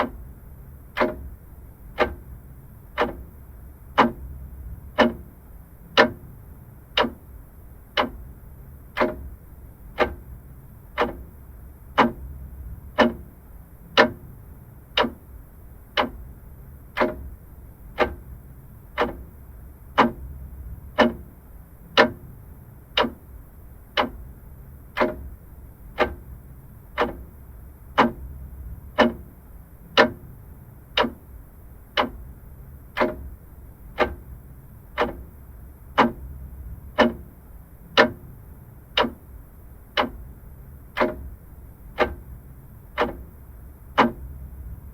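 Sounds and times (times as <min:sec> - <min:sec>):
clock ticking: 0:00.0 - 0:00.3, 0:00.9 - 0:44.8.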